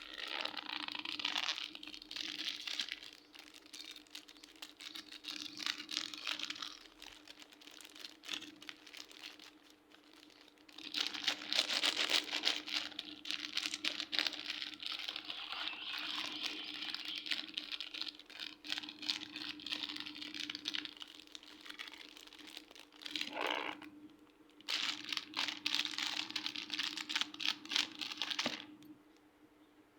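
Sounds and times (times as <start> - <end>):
faint steady hum: 0.0 - 29.9.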